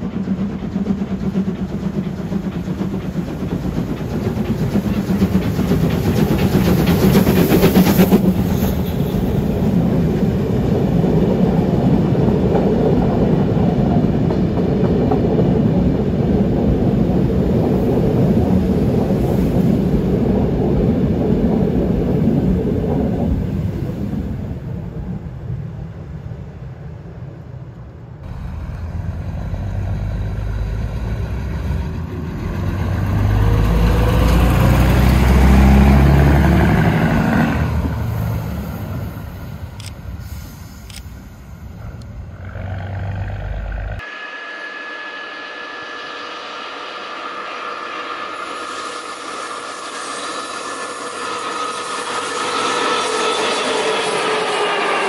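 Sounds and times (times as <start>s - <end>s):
railbus diesel engine rumble: 0.0s - 55.0s
steam train passing: 0.0s - 55.0s.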